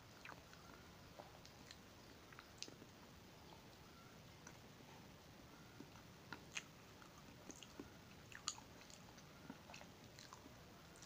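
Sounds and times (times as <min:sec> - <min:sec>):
person chewing with wet mouth clicks: 0:05.8 - 0:11.0.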